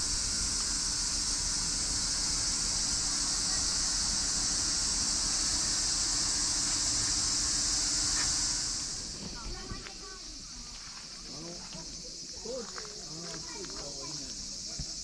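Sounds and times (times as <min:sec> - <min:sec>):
cicada chorus: 0:00.0 - 0:15.0.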